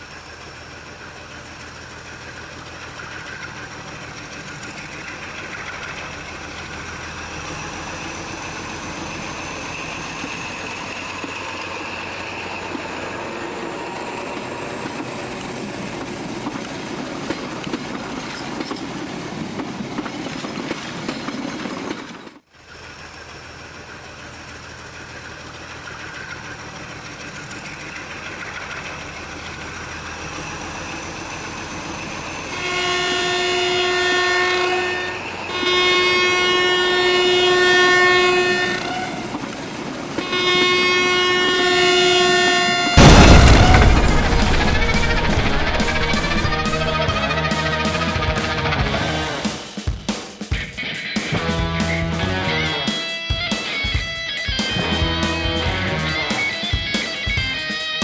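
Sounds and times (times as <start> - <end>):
train rumble and wheel clatter: 0.0 - 22.5, 23.1 - 49.4
high rising tone: 43.0 - 49.6.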